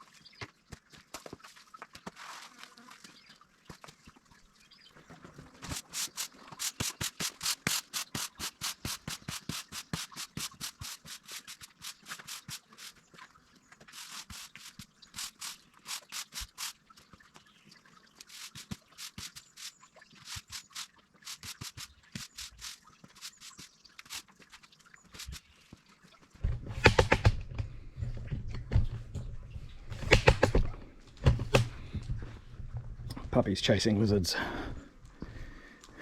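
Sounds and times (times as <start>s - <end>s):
garden shears snipping stems: 5.6s - 13.0s, 13.9s - 16.8s, 18.2s - 24.3s, 26.7s - 27.4s, 29.9s - 31.8s.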